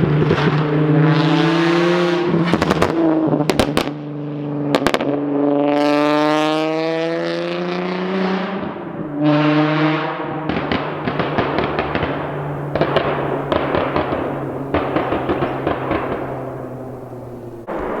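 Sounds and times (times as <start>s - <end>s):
car engine revving: 0.0s - 18.0s
exhaust pops: 2.3s - 4.0s, 10.5s - 18.0s.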